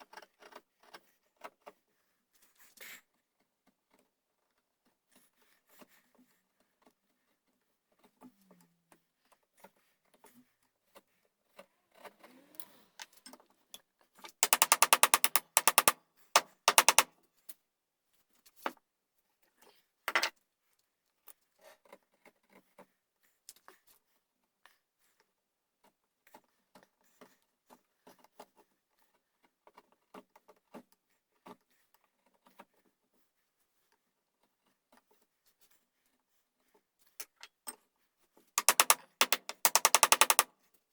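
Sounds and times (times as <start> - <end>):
fast rattling tool strokes: 14.4 - 17.1, 38.6 - 40.5
hand tools clicking and scraping wood: 14.4 - 17.1, 38.6 - 40.5.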